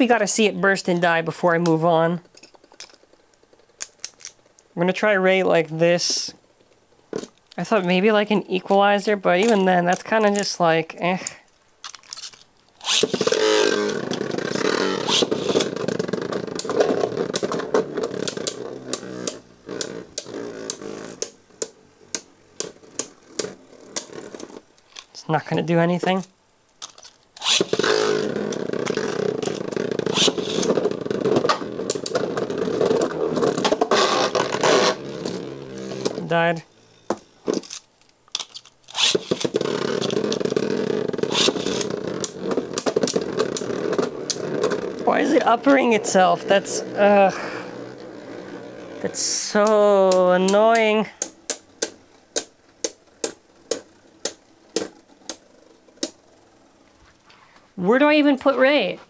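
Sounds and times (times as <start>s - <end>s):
plastic tops clacking: 11.2s - 19.4s, 26.8s - 34.9s, 37.1s - 45.8s
spinning tops whirring: 12.1s - 24.4s, 26.8s - 36.3s, 38.4s - 56.6s.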